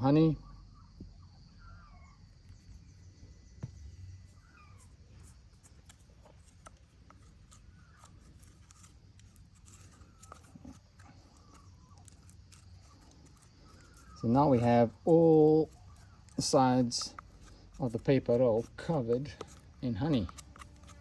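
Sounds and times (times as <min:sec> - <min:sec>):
faint bird chirps: 0:00.0 - 0:06.2, 0:07.3 - 0:20.3
spatula scraping cardboard: 0:04.8 - 0:14.8, 0:15.6 - 0:21.0.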